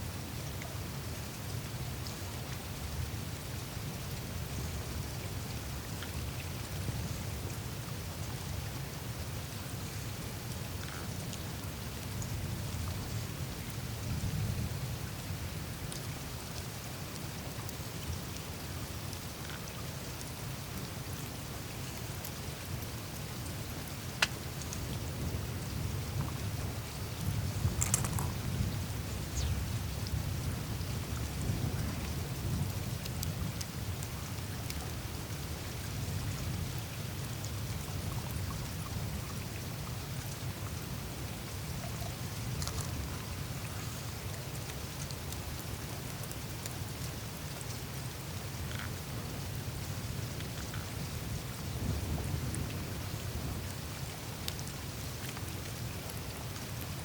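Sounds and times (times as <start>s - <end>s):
steady low rumble: 24.5s - 33.4s
ice dripping and ticking: 27.2s - 30.2s
ice ticking and crackling: 27.6s - 28.5s.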